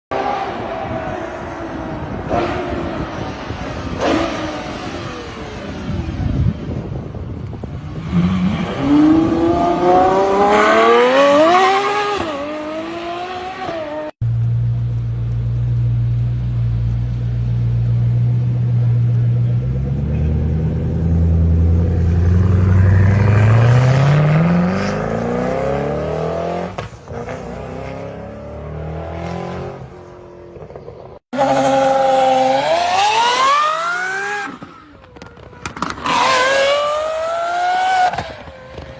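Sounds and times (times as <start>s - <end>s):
car engine accelerating: 7.5s - 38.9s
car engine revving: 17.8s - 38.9s.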